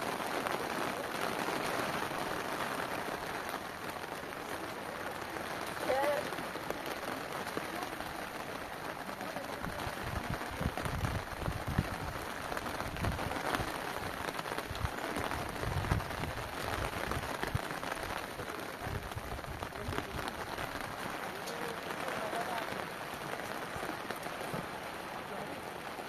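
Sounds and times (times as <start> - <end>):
steady rain falling: 0.0 - 26.0
wind rumbling on microphone: 9.6 - 21.0.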